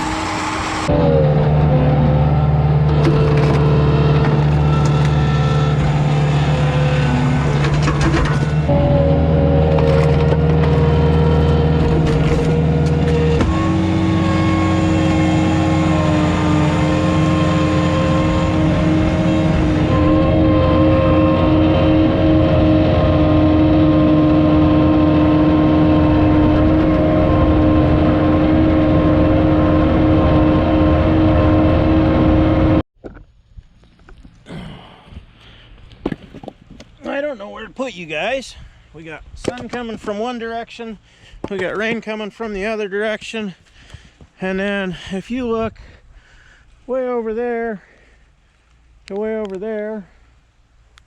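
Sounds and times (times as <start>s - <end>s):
engine running hard: 0.0s - 32.8s
loud drone with pitched note: 0.0s - 32.8s.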